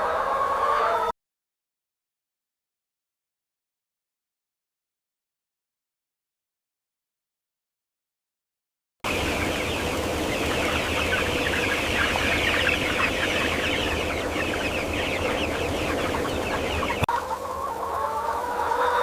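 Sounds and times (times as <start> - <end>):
chickens peeping and clucking: 0.0 - 1.1, 9.1 - 19.0
low steady hum: 9.1 - 17.1.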